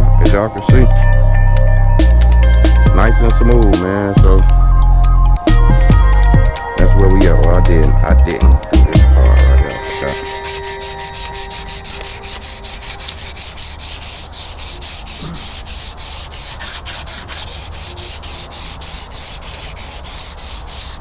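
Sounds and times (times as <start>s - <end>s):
sandpaper rubbing back and forth: 8.9s - 21.0s.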